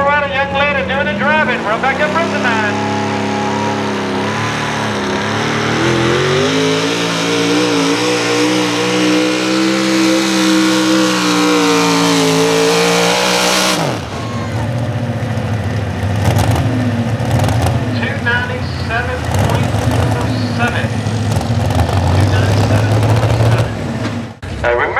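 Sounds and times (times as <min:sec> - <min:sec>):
truck engine at full throttle: 0:00.0 - 0:24.9.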